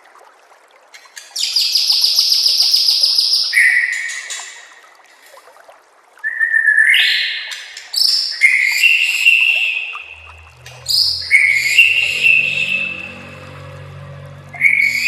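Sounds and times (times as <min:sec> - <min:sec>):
bird whistling rising phrases: 0:10.1 - 0:15.0.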